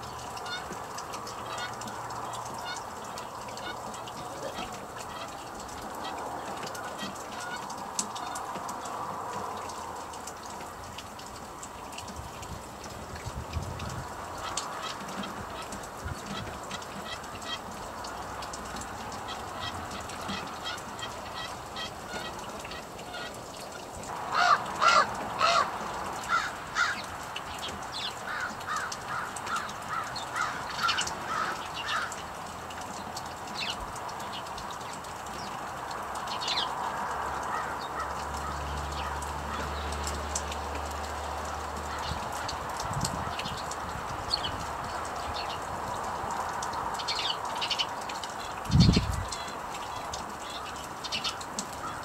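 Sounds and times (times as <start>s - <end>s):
birds calling: 0.0s - 12.1s, 13.8s - 52.0s.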